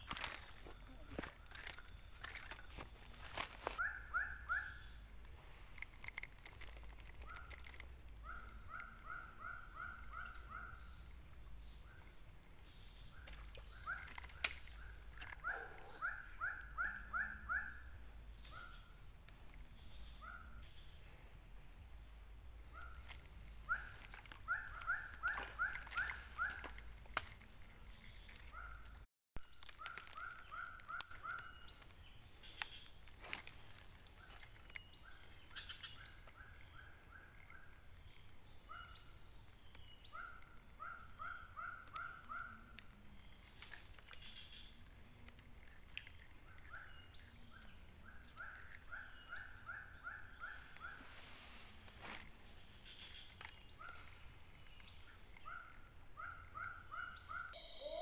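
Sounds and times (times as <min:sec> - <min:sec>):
high-pitched insect drone: 0:00.0 - 0:29.0, 0:29.7 - 0:58.0
bird calling rising notes: 0:57.5 - 0:58.0.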